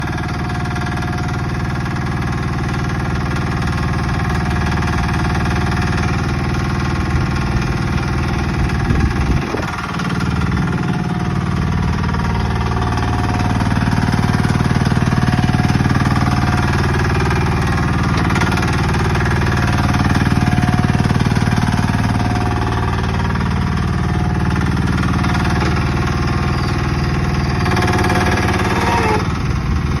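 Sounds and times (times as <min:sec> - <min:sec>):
excavator engine running: 0:00.0 - 0:30.0
hydraulics working: 0:07.2 - 0:30.0.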